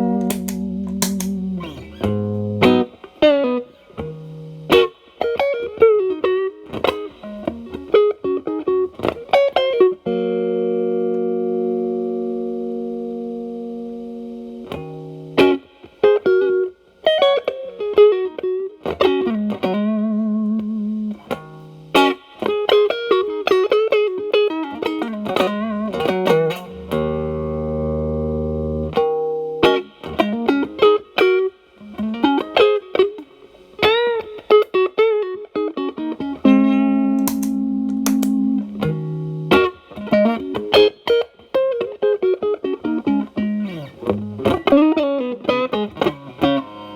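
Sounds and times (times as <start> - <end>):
ringing guitar chords: 0.0 - 4.8, 36.5 - 41.0
overdriven electric guitar lead: 0.0 - 15.3, 35.5 - 46.9.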